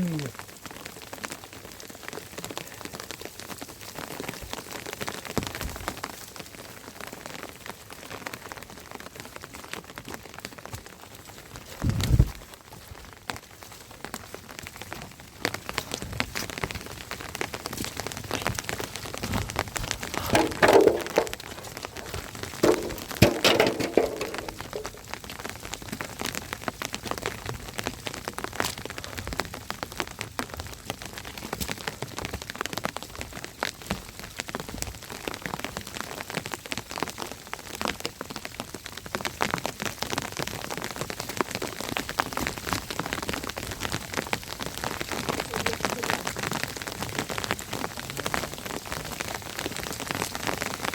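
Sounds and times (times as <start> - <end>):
rain drops striking a surface: 0.0 - 50.9.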